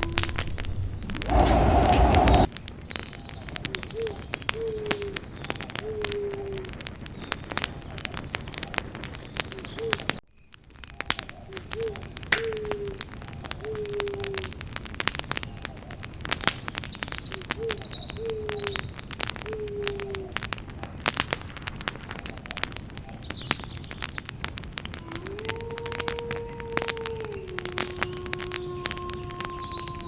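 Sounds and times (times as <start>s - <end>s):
bird calling low falling calls: 0.0s - 10.2s, 11.4s - 14.5s, 17.2s - 18.8s, 24.9s - 30.0s
campfire crackling and popping: 0.0s - 30.0s.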